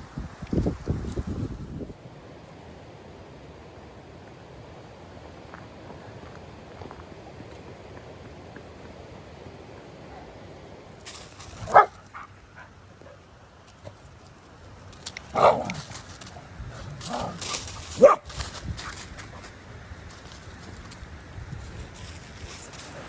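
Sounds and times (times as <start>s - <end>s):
dog barking: 11.7s - 12.0s, 15.4s - 15.7s, 18.0s - 18.3s.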